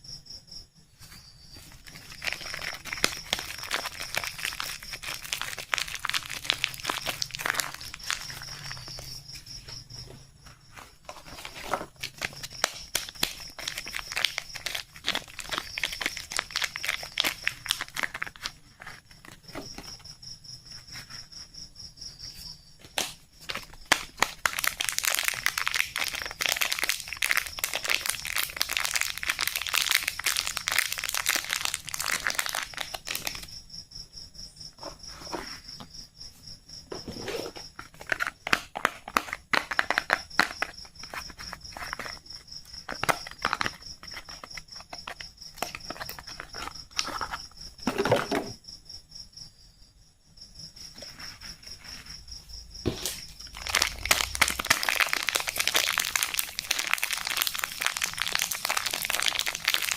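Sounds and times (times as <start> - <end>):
packaging crinkling and tearing: 1.7 - 9.1, 11.0 - 19.6, 23.0 - 33.4, 42.9 - 47.4, 52.9 - 59.9.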